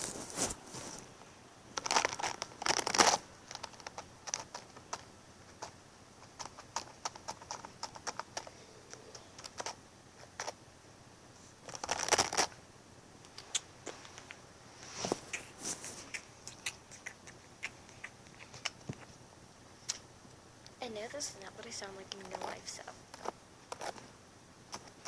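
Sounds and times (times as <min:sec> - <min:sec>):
close-up crinkling: 0:00.0 - 0:10.6, 0:11.4 - 0:12.6, 0:21.1 - 0:24.1.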